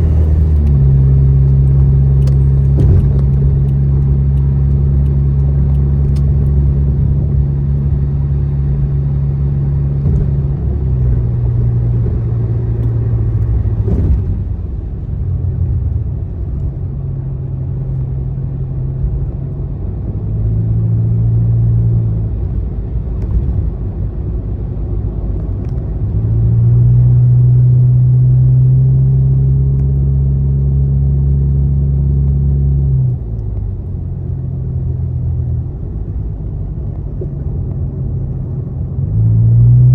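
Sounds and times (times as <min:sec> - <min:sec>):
low drone shifting pitch: 0:00.0 - 0:13.9
road and engine rumble: 0:00.0 - 0:39.9.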